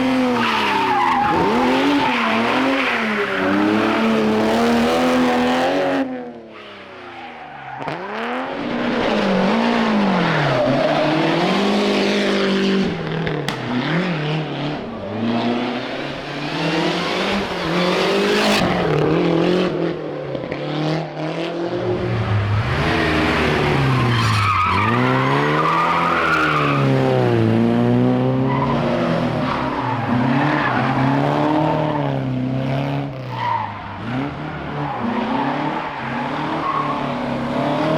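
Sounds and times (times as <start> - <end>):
rally car engine revving: 0.0 - 37.9
tyres squealing: 22.6 - 26.9.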